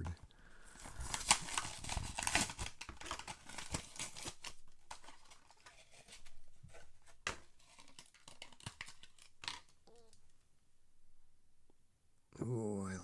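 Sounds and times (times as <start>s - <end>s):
plastic packaging crackling and tearing: 0.7s - 10.3s.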